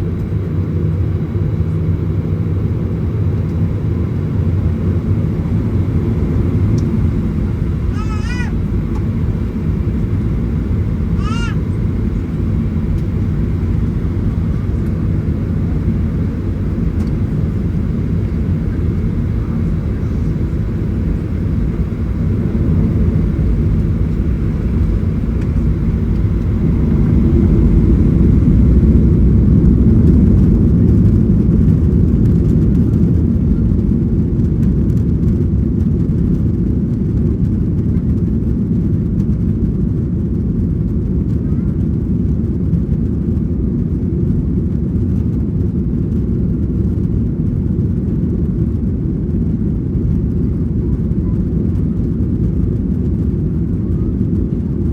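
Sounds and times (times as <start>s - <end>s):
deep cabin rumble: 0.0s - 35.2s
jet engines at takeoff thrust: 0.0s - 54.9s.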